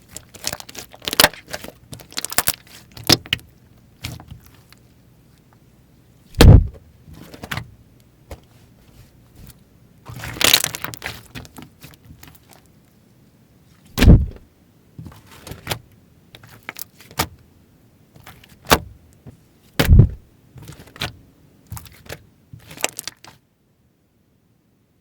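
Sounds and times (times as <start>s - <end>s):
slime clicking and crackling: 0.0s - 4.5s, 10.1s - 12.7s, 21.7s - 23.4s
deep slime pops: 6.4s - 6.8s, 14.0s - 14.4s, 19.8s - 20.2s.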